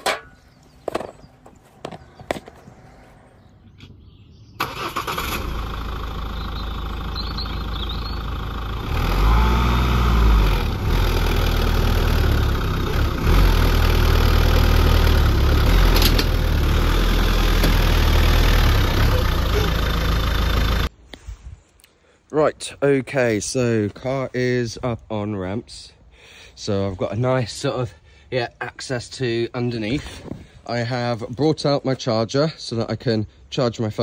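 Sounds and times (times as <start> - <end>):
diesel car engine revving: 4.6 - 20.9.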